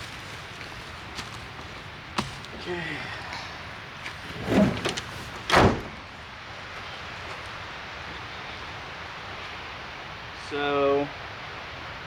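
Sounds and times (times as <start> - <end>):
truck door slamming shut: 4.3 - 6.1.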